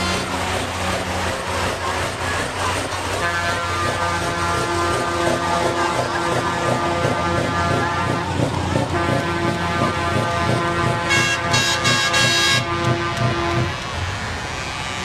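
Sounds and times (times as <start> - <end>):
lorry engines running: 0.0 - 15.0
truck air horn blasts: 3.2 - 13.7.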